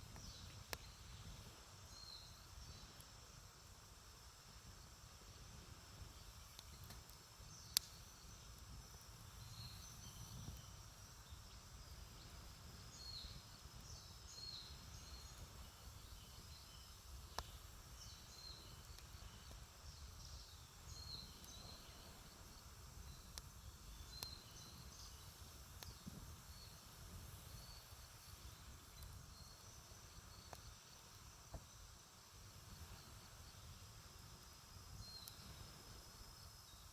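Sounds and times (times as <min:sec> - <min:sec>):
burning wood popping: 0:06.0 - 0:31.7
faint high chirping: 0:06.0 - 0:32.1, 0:32.7 - 0:36.9.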